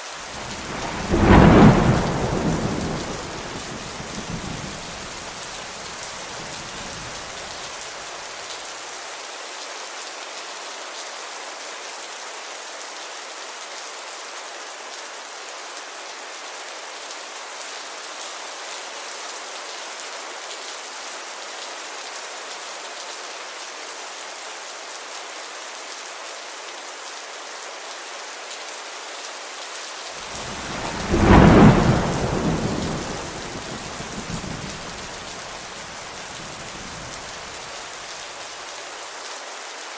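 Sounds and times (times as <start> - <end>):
steady rainfall: 0.0 - 39.9
thunder rumbling: 0.3 - 7.6, 30.3 - 37.8.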